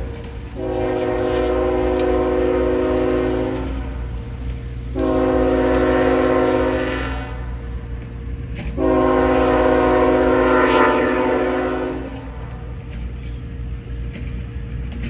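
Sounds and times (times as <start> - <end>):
locomotive air horn blasts: 0.0 - 4.2, 4.9 - 7.8, 8.7 - 12.4
train rumble: 0.0 - 15.0.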